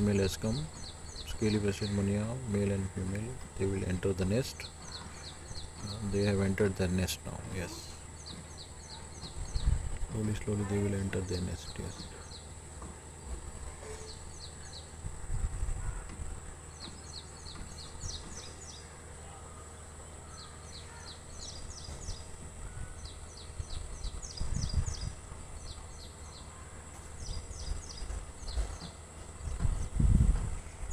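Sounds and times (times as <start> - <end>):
steady high whine: 0.0 - 30.9
small bird chirping: 16.7 - 30.1.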